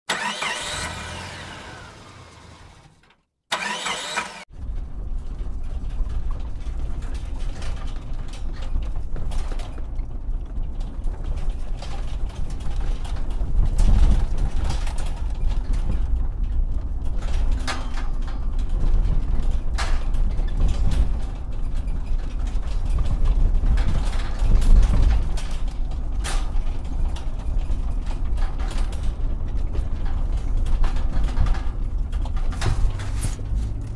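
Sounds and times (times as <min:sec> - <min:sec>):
toy excavator mechanical rumble: 0:00.1 - 0:04.5
sharp clicks and knocks: 0:04.4 - 0:33.9.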